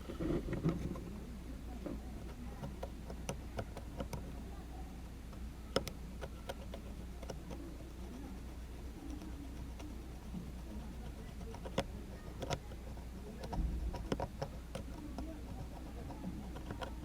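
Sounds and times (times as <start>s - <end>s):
low steady hum: 0.0s - 17.0s
light clicks and taps: 1.8s - 4.3s, 5.3s - 8.3s, 11.3s - 17.0s.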